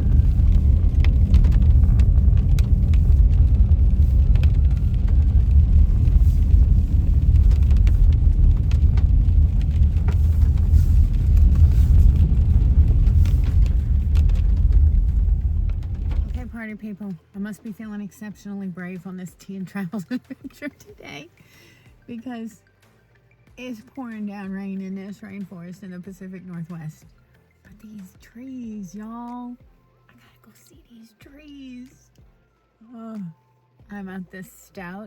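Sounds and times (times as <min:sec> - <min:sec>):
low road rumble inside car: 0:00.0 - 0:17.2.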